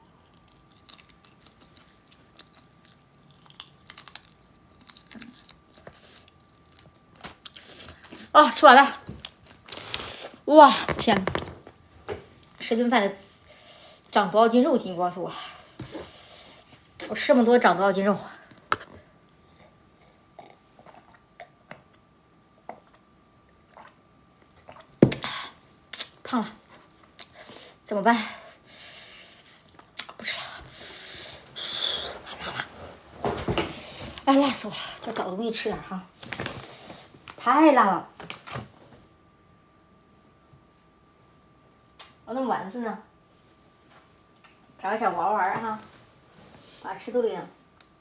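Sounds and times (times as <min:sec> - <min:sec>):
person chewing food: 0:00.0 - 0:08.2, 0:19.5 - 0:22.0.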